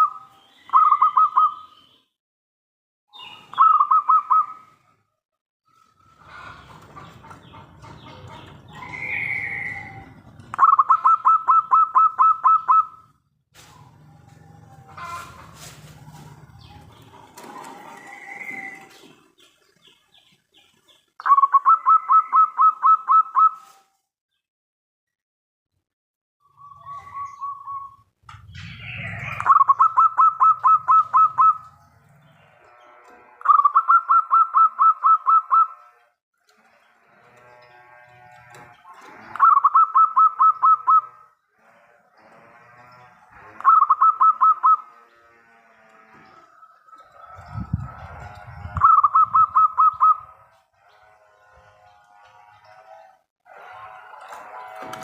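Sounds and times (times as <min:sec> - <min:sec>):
dove cooing: 0:06.3 - 0:13.1, 0:29.0 - 0:31.7, 0:38.9 - 0:41.3, 0:43.5 - 0:44.9, 0:47.0 - 0:50.4.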